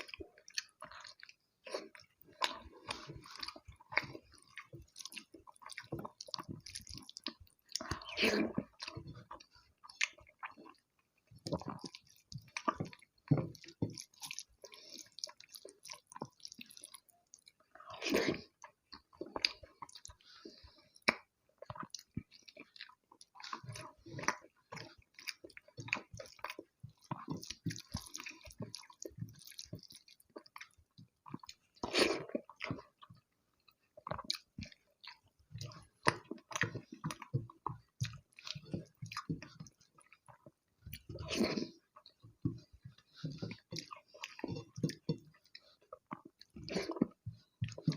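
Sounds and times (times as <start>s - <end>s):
wet chewing and lip smacks: 0.0s - 47.9s.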